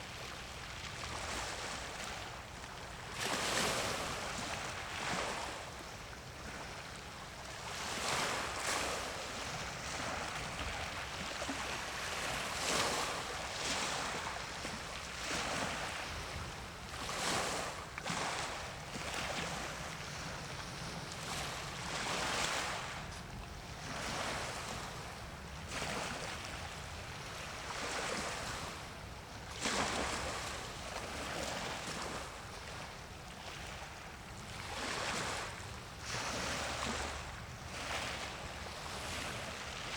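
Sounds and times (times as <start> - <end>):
sea waves washing in: 7.4 - 28.9.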